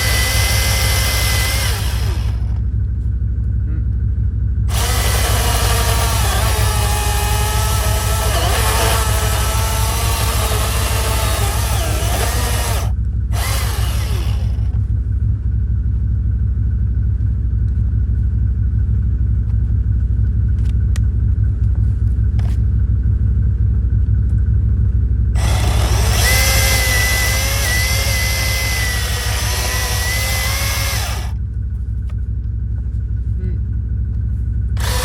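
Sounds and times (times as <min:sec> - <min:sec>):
chainsaw motor whine: 0:00.0 - 0:02.6, 0:04.7 - 0:14.8, 0:25.4 - 0:31.4, 0:34.8 - 0:35.0
steady low rumble: 0:00.0 - 0:35.0.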